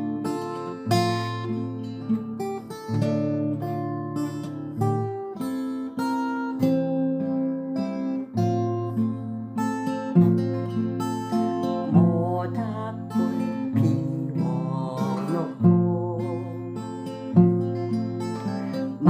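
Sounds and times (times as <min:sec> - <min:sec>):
acoustic guitar chords: 0:00.0 - 0:19.0.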